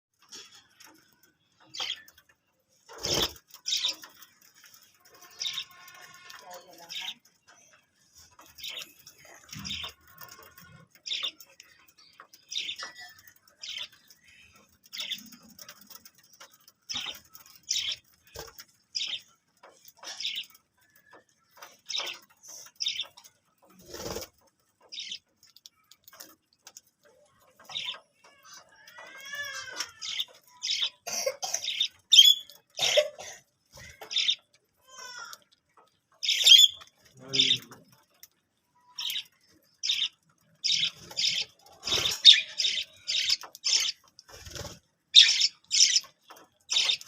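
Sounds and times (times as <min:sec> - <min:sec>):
budgerigars chirping: 0:36.2 - 0:37.6, 0:45.2 - 0:46.1, 0:46.7 - 0:47.0.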